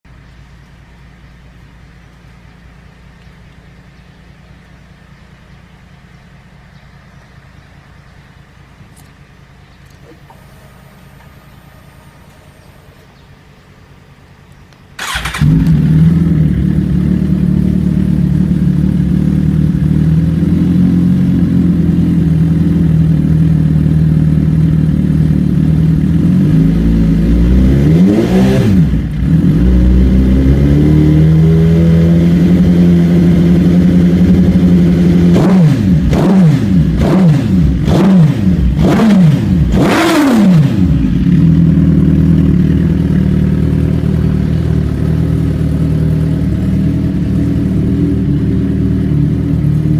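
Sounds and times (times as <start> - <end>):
motorcycle engine idling and revving: 0.1 - 49.9.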